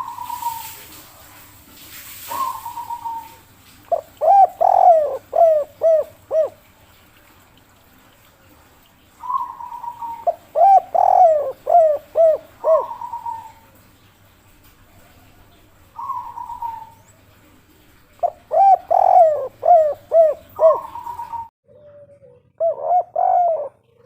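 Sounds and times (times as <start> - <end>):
dove cooing: 0.0 - 0.9, 2.3 - 6.7, 9.2 - 13.8, 14.9 - 24.0.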